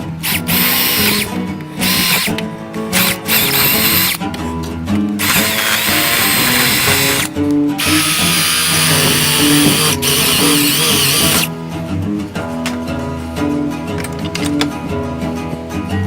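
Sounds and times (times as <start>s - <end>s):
wire wheel scrubbing metal: 0.0s - 11.5s
acoustic blues guitar music: 0.0s - 16.0s.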